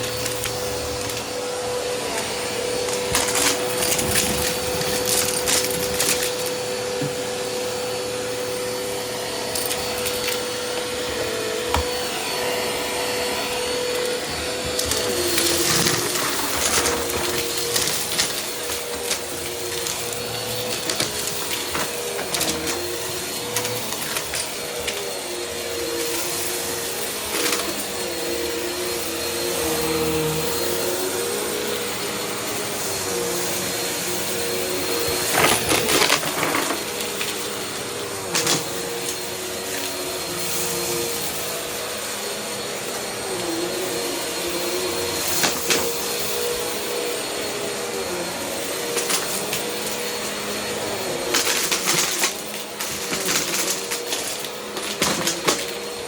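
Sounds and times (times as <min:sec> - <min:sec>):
vacuum cleaner motor whine: 0:00.0 - 0:56.0.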